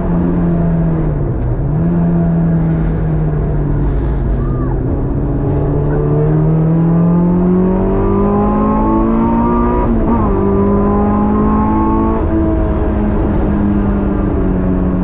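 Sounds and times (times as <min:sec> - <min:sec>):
car engine revving hard: 0:05.1 - 0:14.4.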